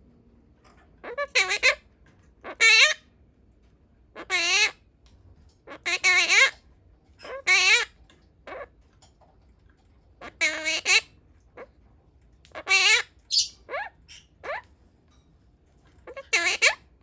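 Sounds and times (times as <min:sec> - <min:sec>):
parakeet squawking: 0:01.0 - 0:01.8, 0:02.4 - 0:03.0, 0:04.2 - 0:04.8, 0:05.7 - 0:06.6, 0:07.2 - 0:08.7, 0:10.2 - 0:11.7, 0:12.5 - 0:14.7, 0:16.1 - 0:16.9.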